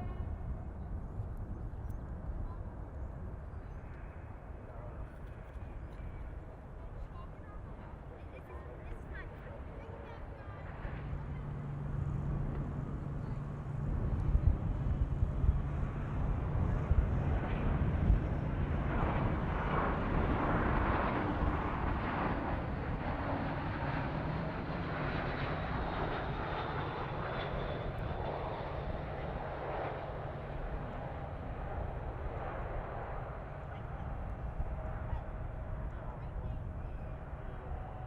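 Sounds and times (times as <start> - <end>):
jet engines roaring: 10.8 - 38.0.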